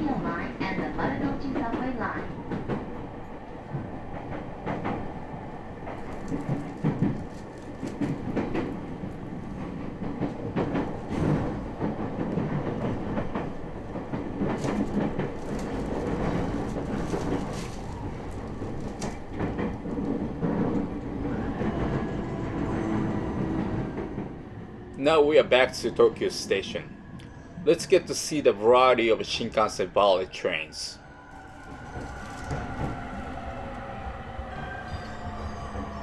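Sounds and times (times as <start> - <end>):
train rumble inside car: 0.0 - 27.3, 31.3 - 36.0
wheels clacking over rail joints: 3.7 - 21.2.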